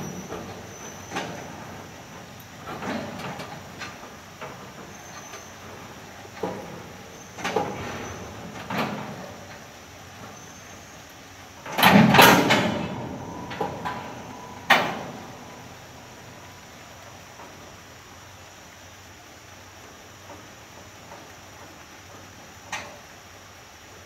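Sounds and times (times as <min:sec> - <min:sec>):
train couplers clanking: 0:00.0 - 0:16.6.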